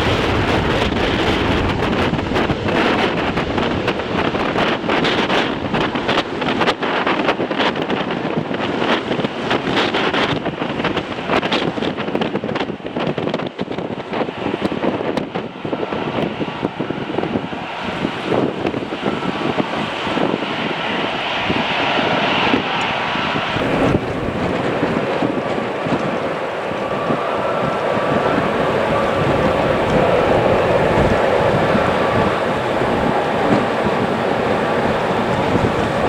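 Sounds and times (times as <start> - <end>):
jet engines running: 0.0 - 6.7, 14.3 - 36.0
wind buffeting microphone: 0.0 - 36.0
thin engine whine: 18.0 - 36.0.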